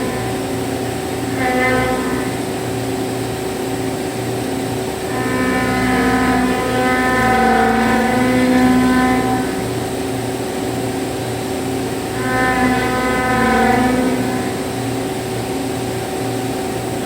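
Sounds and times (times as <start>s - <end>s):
constant machine hum: 0.0s - 17.0s
milling cutter whine: 0.0s - 17.0s.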